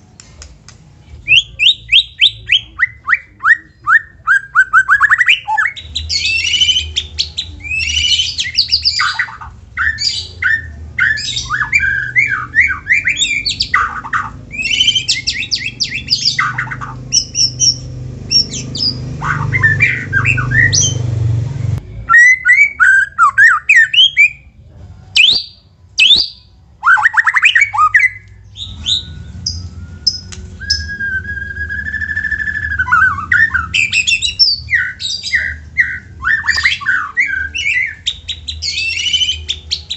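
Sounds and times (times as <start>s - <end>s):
low background hum: 0.0s - 39.9s
bird singing varied song: 1.0s - 24.6s, 25.2s - 39.9s
long drawn-out whistle: 28.6s - 34.1s.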